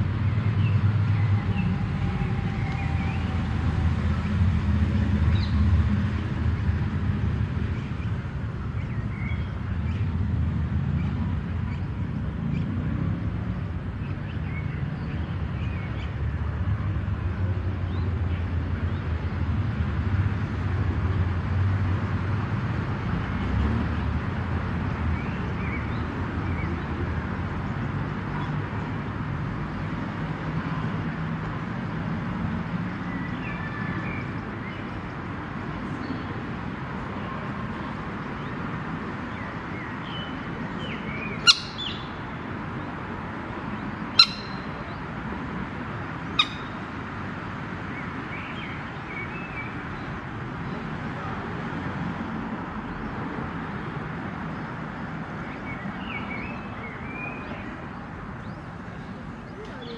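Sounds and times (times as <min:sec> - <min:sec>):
birds calling: 0:39.3 - 0:45.3, 0:46.0 - 0:47.1.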